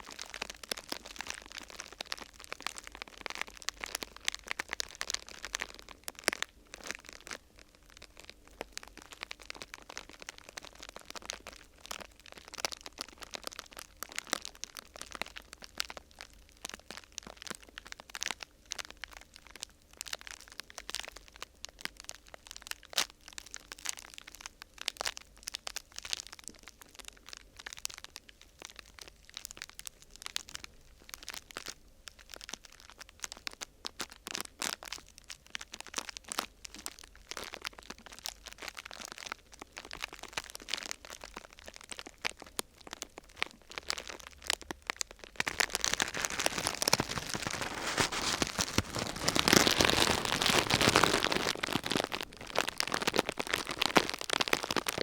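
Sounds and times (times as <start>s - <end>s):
sheet material crinkling: 39.8s - 55.0s.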